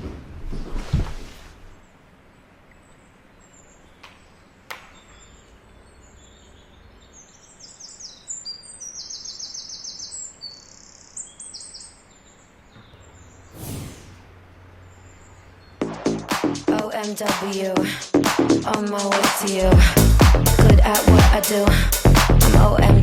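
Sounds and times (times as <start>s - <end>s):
faint outdoor hiss: 0.6s - 15.8s
birds chirping and trilling: 1.7s - 15.8s.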